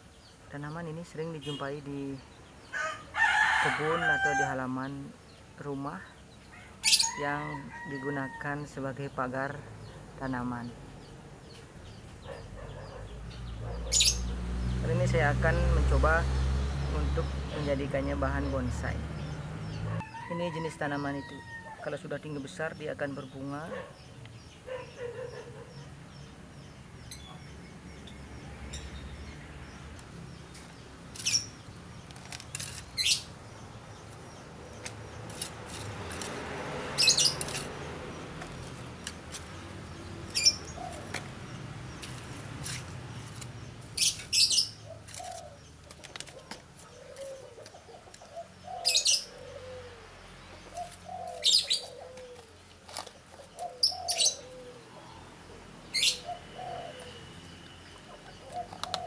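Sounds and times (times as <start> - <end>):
birds chirping: 0.0 - 59.0
lower curving bird calls: 11.4 - 14.3, 44.0 - 59.0.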